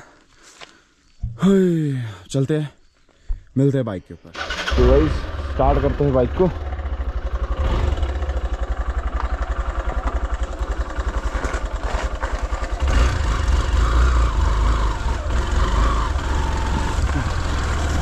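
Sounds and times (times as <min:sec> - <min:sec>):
motorcycle engine idling: 0:04.4 - 0:18.0
motorcycle revving and riding off: 0:04.4 - 0:18.0.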